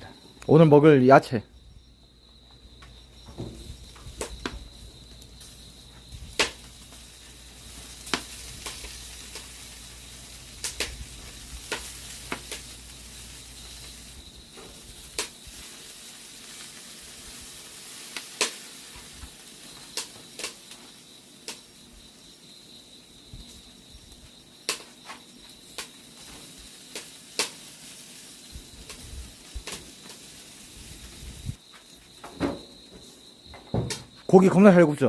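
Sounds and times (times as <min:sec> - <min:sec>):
salt popping and crackling: 0:03.2 - 0:21.7, 0:25.6 - 0:31.6
shrimp sizzling in a hot pan: 0:03.4 - 0:22.6, 0:24.7 - 0:31.7.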